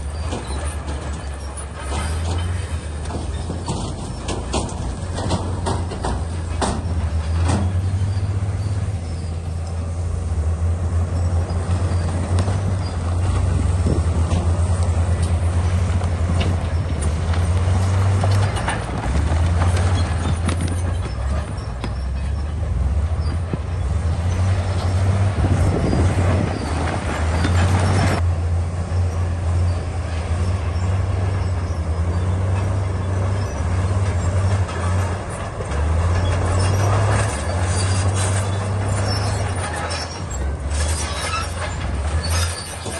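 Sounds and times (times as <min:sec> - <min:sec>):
bulldozer diesel engine droning: 0:00.0 - 0:42.9
tracks clanking: 0:00.0 - 0:42.9
rock scraping and grinding: 0:33.4 - 0:42.9.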